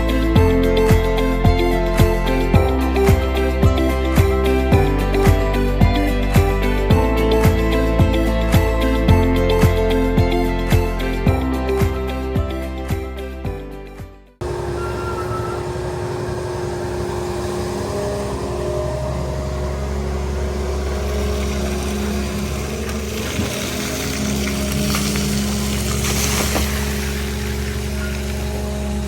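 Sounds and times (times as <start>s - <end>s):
diesel engine running: 0.0s - 12.8s, 14.4s - 29.0s
water splashing and draining: 19.8s - 29.0s.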